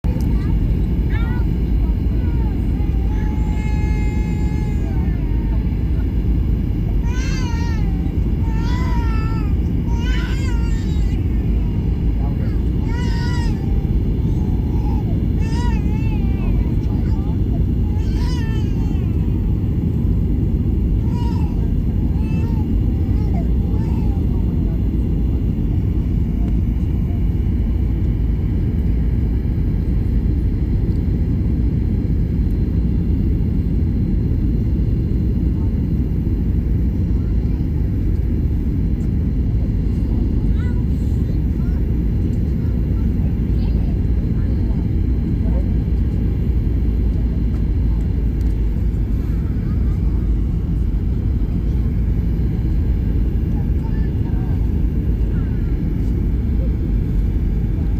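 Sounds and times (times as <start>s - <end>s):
airliner cabin rumble: 0.0s - 57.9s
baby crying: 2.2s - 5.2s, 7.0s - 11.3s, 12.5s - 19.4s, 21.0s - 24.2s.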